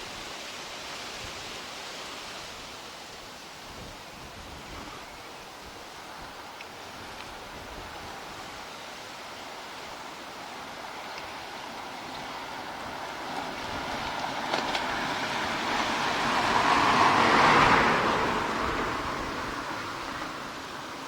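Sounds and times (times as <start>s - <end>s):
vehicle passing close by: 10.6s - 21.0s.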